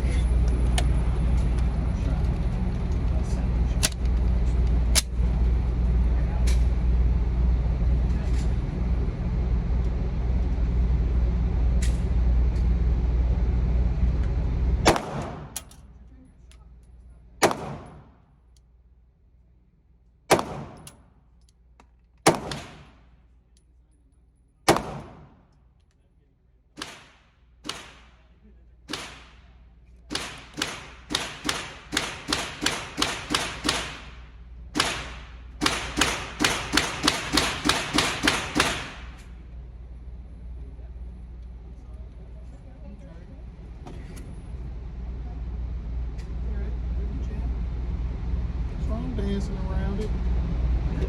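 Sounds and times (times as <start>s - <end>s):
distant rapid gunfire: 14.9s - 15.6s, 17.4s - 18.1s, 20.3s - 20.8s, 22.3s - 23.0s, 24.7s - 25.4s, 30.1s - 39.2s
loud pistol shots: 14.9s - 15.6s, 17.4s - 18.1s, 20.3s - 21.0s, 22.3s - 23.0s, 24.7s - 25.4s, 28.9s - 29.4s, 30.1s - 39.2s.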